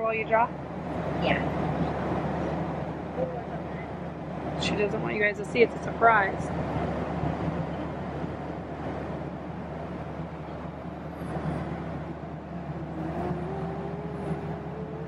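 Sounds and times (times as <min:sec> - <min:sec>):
airliner cabin noise: 0:00.0 - 0:15.0.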